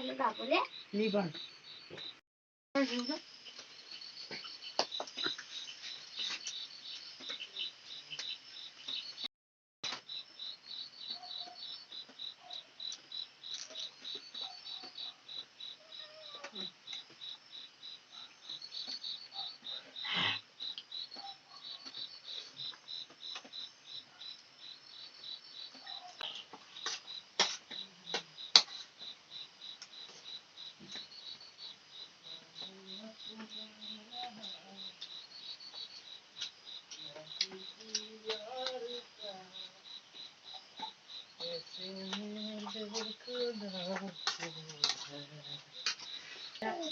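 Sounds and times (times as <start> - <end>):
crickets chirping: 0.0 - 2.2, 2.8 - 46.9.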